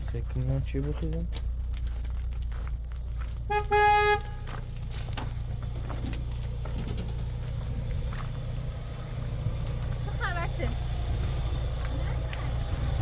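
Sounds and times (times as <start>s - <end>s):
engine idling hum: 0.0s - 13.0s
vehicle horn toot: 3.5s - 4.5s.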